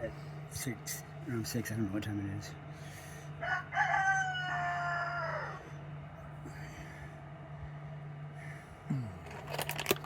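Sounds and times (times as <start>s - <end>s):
steady low hum: 0.0s - 10.0s
rooster crowing: 3.4s - 5.8s.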